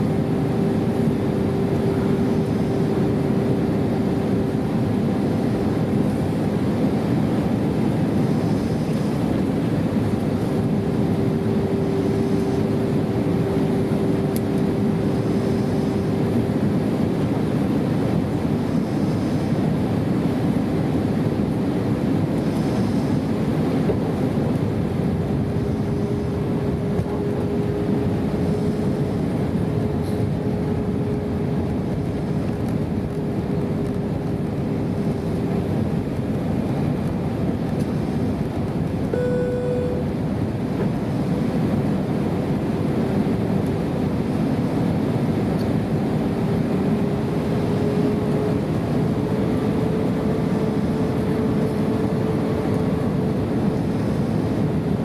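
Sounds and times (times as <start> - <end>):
airplane cabin engine drone: 0.0 - 55.0
short high tone: 39.1 - 40.1.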